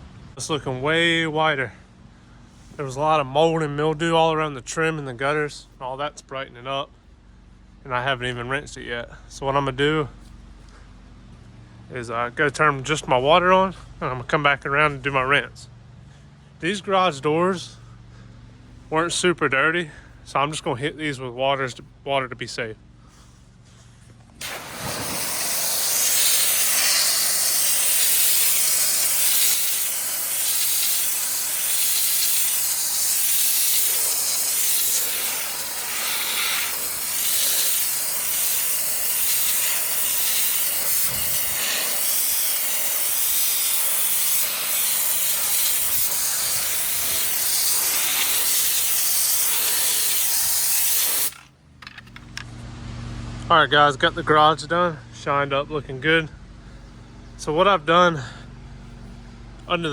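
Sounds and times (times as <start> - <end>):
pressure washer spraying: 24.4 - 51.4.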